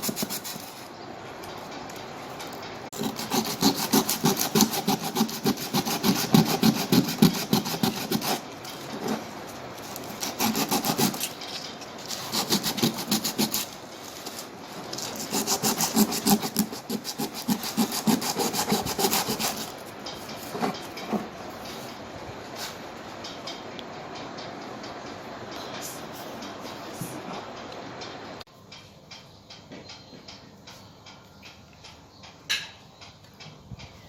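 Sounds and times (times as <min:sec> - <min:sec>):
hand scrubbing or sanding strokes: 0:03.0 - 0:08.4, 0:10.2 - 0:11.3, 0:12.1 - 0:13.7, 0:15.1 - 0:19.7.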